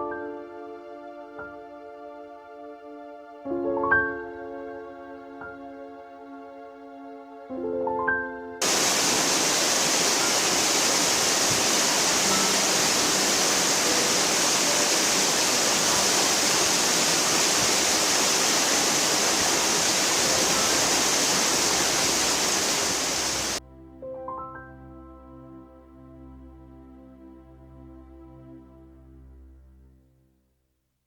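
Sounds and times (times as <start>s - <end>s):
waterfall rushing: 8.6s - 23.6s.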